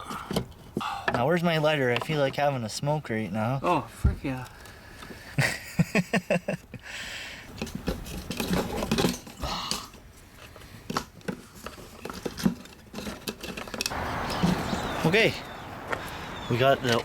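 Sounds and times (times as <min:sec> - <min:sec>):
metal tools knocking and rattling: 0:07.5 - 0:10.0, 0:10.9 - 0:15.2.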